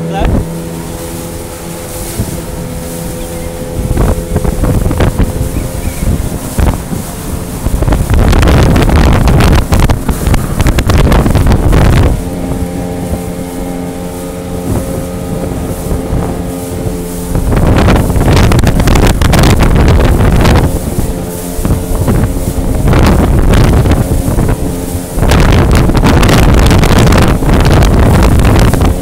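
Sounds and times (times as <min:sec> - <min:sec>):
jet boat engine running: 0:00.0 - 0:29.0
wind buffeting microphone: 0:00.0 - 0:29.0.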